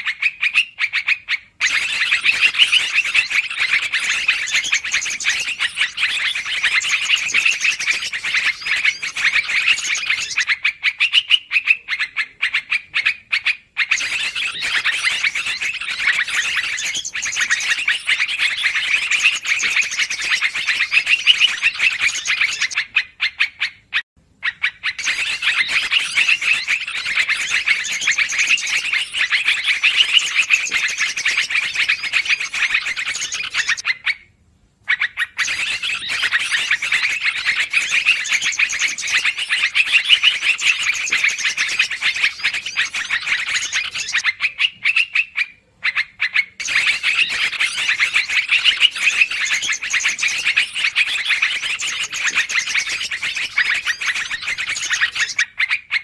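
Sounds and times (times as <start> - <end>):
bulbul lure calls chattering: 0.5 - 13.0, 13.8 - 23.0, 24.6 - 33.8, 46.6 - 55.4.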